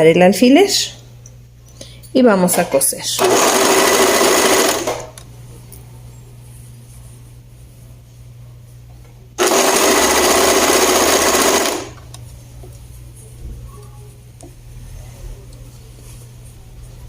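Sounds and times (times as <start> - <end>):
sewing machine stitching: 3.2 - 5.1, 9.4 - 12.1.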